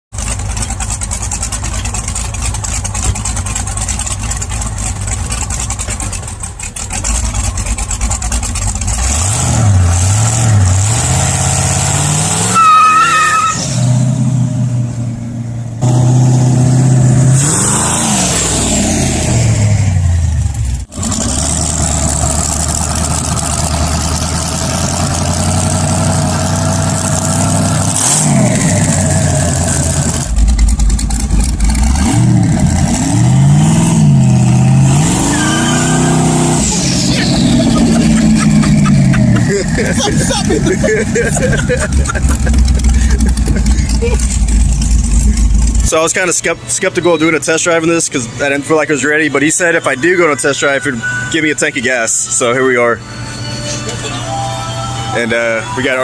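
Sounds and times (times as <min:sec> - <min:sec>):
car engine revving: 0:00.2 - 0:46.7.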